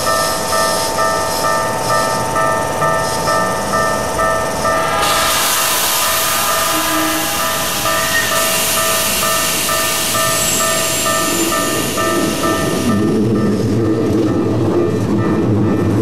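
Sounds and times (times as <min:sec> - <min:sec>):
level crossing warning bell: 0:00.0 - 0:04.9, 0:06.3 - 0:16.0
train wheels rushing noise: 0:03.0 - 0:13.8.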